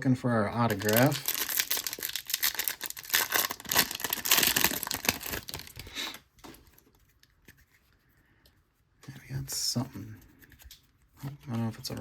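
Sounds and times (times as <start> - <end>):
foil wrapper crinkling and tearing: 0.6 - 6.2.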